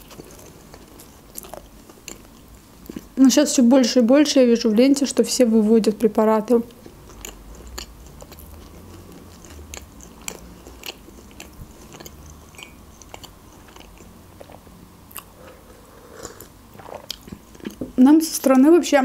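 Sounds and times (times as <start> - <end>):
chewing soft food: 0.0 - 3.2, 6.7 - 17.9.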